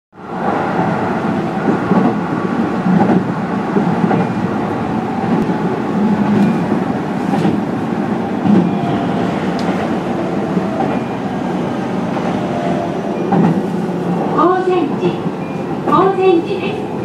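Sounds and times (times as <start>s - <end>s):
train wheels rumbling on rail: 0.2s - 17.0s.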